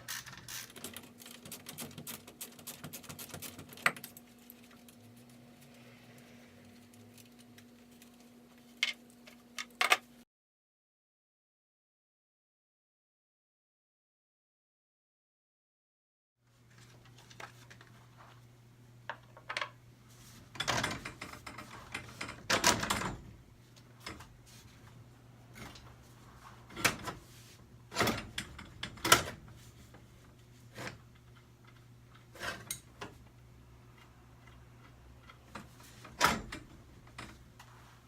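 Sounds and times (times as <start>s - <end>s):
tools scraping: 30.6s - 33.1s.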